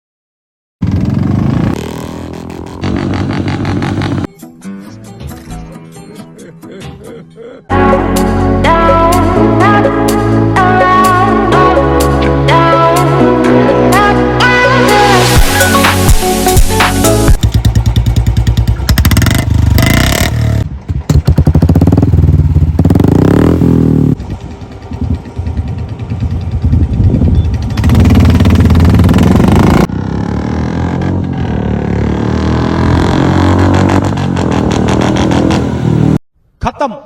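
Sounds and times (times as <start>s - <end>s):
motorcycle engines revving: 0.8s - 4.3s, 17.1s - 36.2s.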